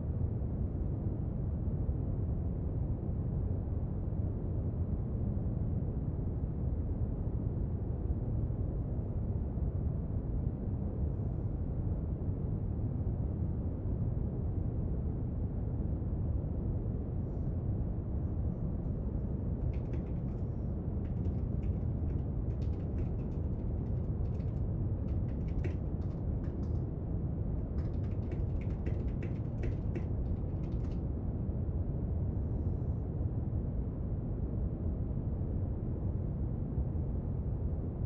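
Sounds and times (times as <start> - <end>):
light desk-work clicks: 19.6 - 26.9, 27.6 - 31.0.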